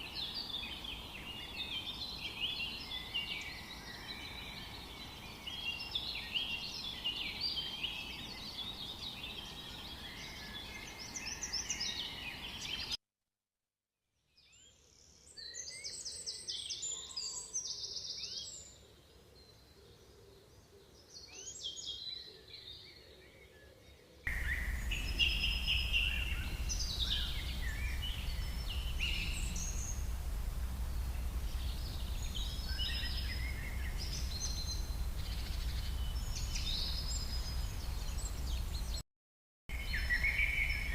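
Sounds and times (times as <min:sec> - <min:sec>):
songbirds chirping: 0:00.0 - 0:13.0, 0:14.4 - 0:39.0, 0:39.7 - 0:40.9
low background rumble: 0:24.3 - 0:38.9.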